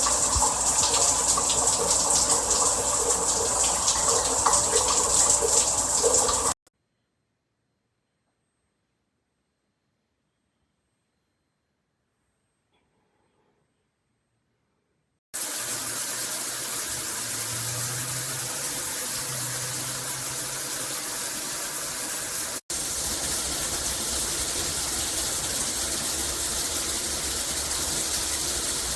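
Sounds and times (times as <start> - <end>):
shower water spraying: 0.0 - 6.6, 15.4 - 28.9.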